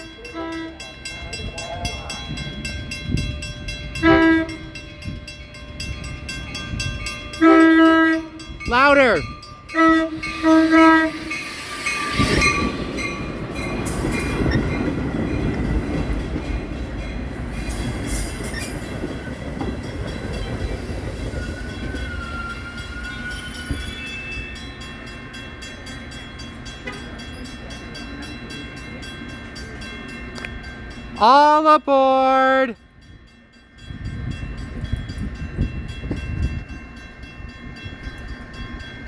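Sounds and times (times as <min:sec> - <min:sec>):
train horn blast: 0:00.0 - 0:01.0, 0:04.0 - 0:04.8, 0:07.3 - 0:08.6, 0:09.7 - 0:11.5
train wheels rumbling on rail: 0:00.0 - 0:31.2, 0:33.0 - 0:39.0.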